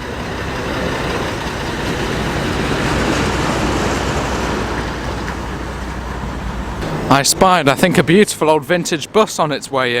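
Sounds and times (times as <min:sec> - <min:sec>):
diesel lorry driving by: 0:00.0 - 0:10.0.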